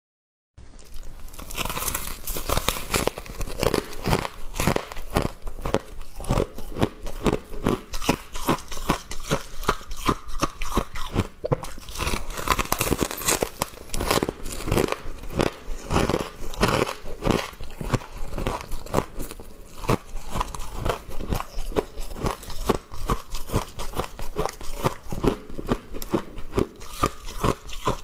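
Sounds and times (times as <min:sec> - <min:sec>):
ice and frost being chewed: 0:00.7 - 0:28.0.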